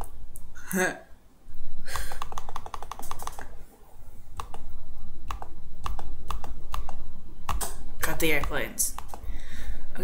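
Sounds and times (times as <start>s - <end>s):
computer keyboard clicking: 2.1s - 3.4s, 4.4s - 4.6s, 5.3s - 7.8s, 8.4s - 9.2s.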